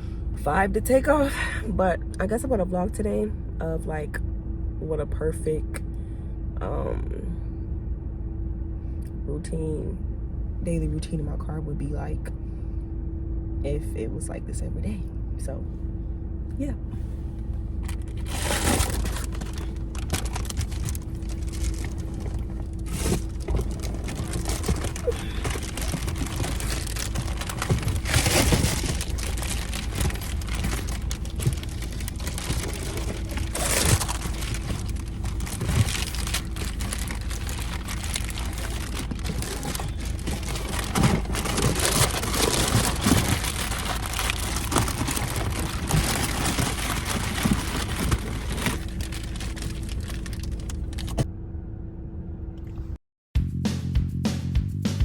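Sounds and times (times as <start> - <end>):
low car rumble: 0.0 - 53.0
material crinkling and rustling: 17.8 - 51.3.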